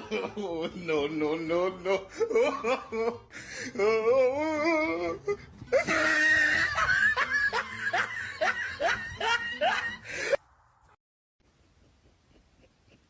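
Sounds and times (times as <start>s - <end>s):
person laughing hard: 0.0s - 10.4s, 11.6s - 13.0s.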